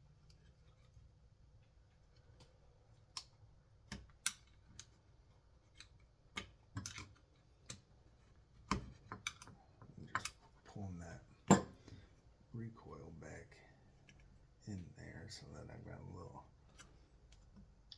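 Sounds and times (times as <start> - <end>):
small parts clicking and knocking: 0.2 - 7.9, 8.6 - 10.5.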